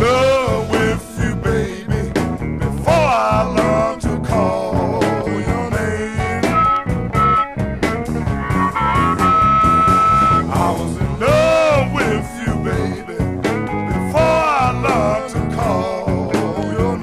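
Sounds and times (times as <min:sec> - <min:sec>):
electric blues band playing: 0:00.0 - 0:17.0
lead guitar bent notes: 0:06.2 - 0:10.9.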